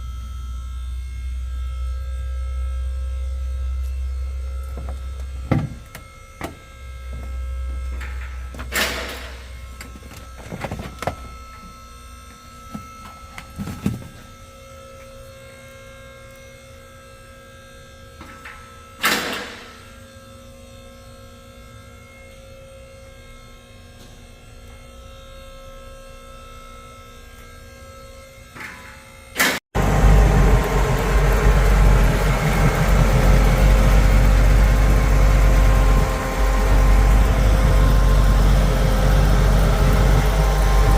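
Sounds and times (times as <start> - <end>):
electrical hum: 0.0 - 19.0, 19.6 - 40.9
car engine with deep exhaust rumble: 29.8 - 40.9.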